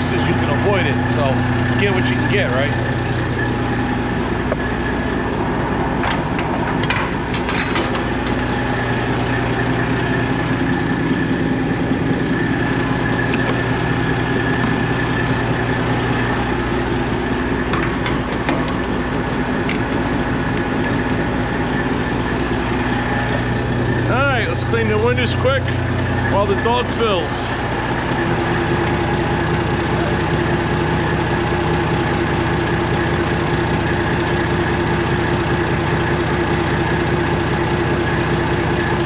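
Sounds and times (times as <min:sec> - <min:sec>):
diesel truck engine idling: 0:00.0 - 0:39.0
sharp clicks and knocks: 0:17.7 - 0:21.0.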